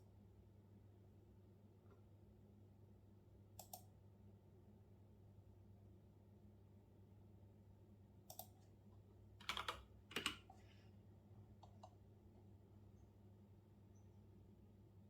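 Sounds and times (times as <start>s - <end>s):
faint low hum: 0.0s - 15.0s
computer keyboard keystrokes: 3.6s - 3.9s, 8.3s - 8.6s, 9.4s - 10.5s, 11.6s - 12.0s.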